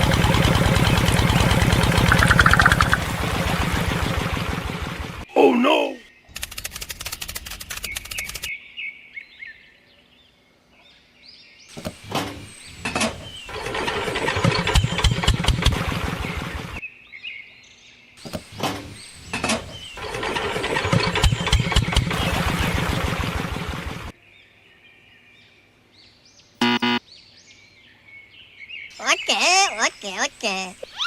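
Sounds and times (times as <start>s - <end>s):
engine starting and running: 0.0s - 5.2s, 12.9s - 16.8s, 19.3s - 24.1s
birds chirping: 0.8s - 3.4s, 26.1s - 31.0s.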